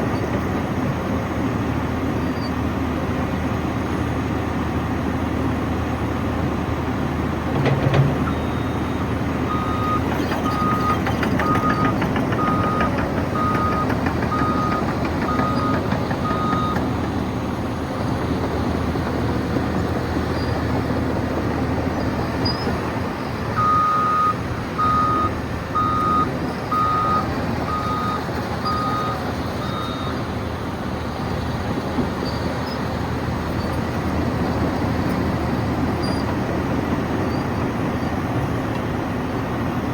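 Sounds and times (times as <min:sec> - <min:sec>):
diesel engine running: 0:00.0 - 0:39.9
reversing alarm beeps: 0:07.9 - 0:16.9, 0:23.6 - 0:30.3.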